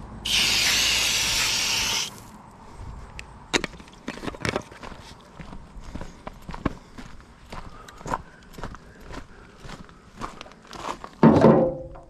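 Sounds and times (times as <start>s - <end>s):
loud hiss: 0.0s - 2.3s.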